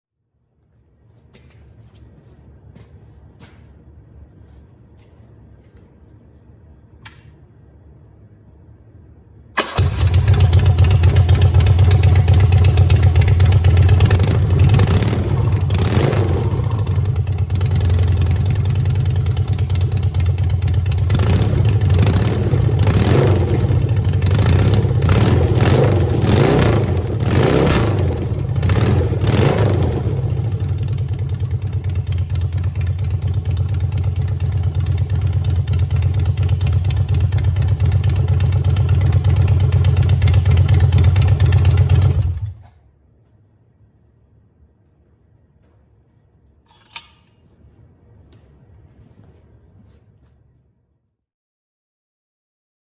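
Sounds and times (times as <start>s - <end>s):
motorcycle engine revving and idling: 9.6s - 42.6s.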